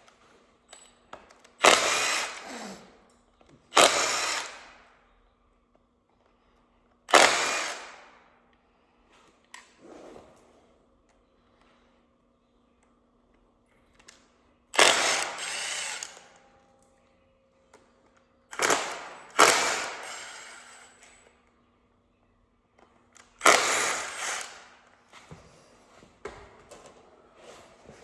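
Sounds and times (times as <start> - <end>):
power tool bursts: 1.6 - 2.8, 3.7 - 4.8, 7.1 - 8.1, 14.8 - 16.2, 18.5 - 21.0, 23.4 - 24.8.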